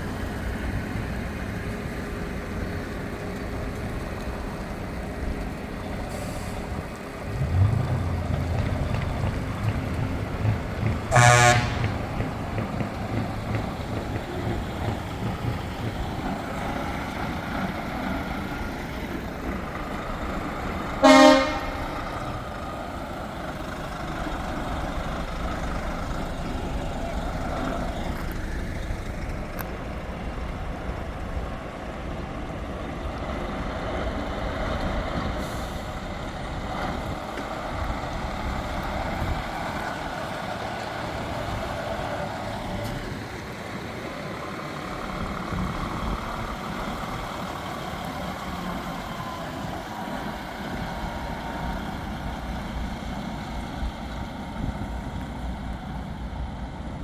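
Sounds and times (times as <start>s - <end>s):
trucks driving past: 0.0s - 57.0s
air brakes hissing: 6.0s - 8.2s, 35.3s - 36.2s.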